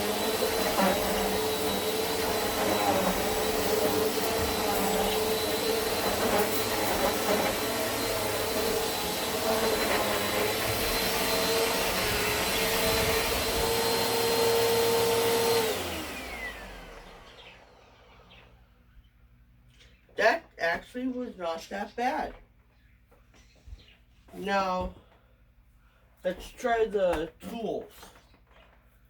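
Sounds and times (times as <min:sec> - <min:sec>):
vacuum cleaner running: 0:00.0 - 0:18.5.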